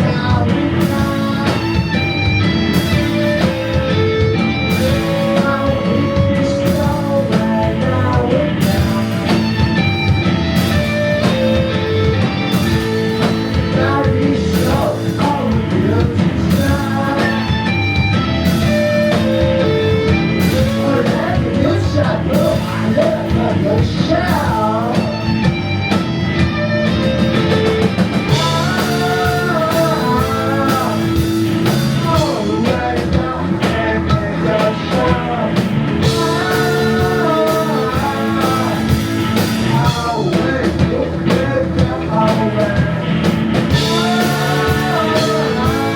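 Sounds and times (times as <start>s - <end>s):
live rock band playing: 0.0s - 45.9s.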